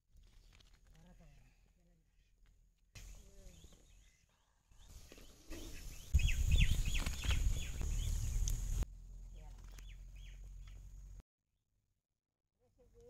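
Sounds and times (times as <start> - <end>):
small birds chirping: 3.0 - 11.2.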